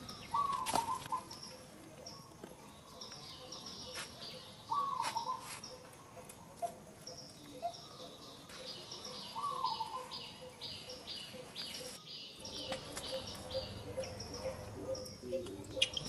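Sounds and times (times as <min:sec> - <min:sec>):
high bird chirps: 0:07.2 - 0:16.0.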